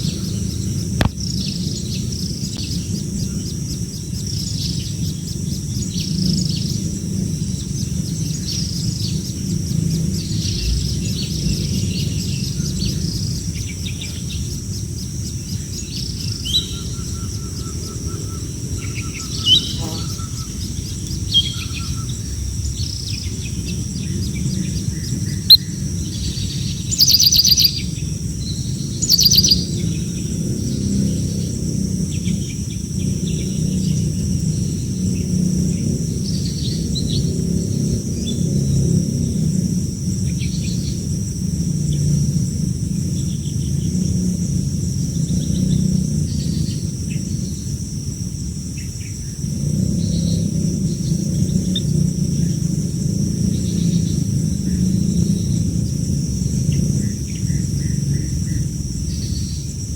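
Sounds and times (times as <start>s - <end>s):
high-pitched insect drone: 2.3s - 59.9s
baby birds chirping: 16.4s - 22.0s, 24.2s - 30.0s.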